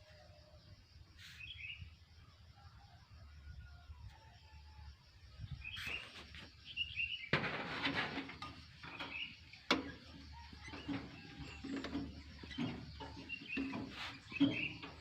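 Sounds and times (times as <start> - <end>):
small birds chirping: 0.1 - 2.2, 5.3 - 7.3, 8.7 - 15.0
rustling noise: 5.6 - 6.8.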